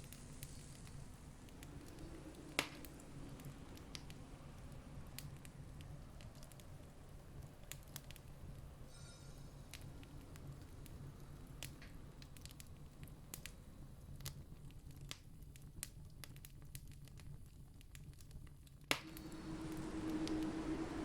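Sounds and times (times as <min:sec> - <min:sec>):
low rumble: 0:00.0 - 0:06.2, 0:19.0 - 0:21.0
campfire crackling and popping: 0:00.0 - 0:08.9, 0:09.7 - 0:21.0.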